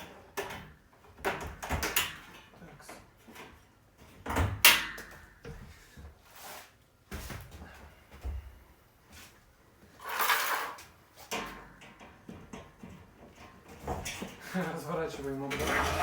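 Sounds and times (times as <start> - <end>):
knocks clunks and rustles: 11.3 - 14.4.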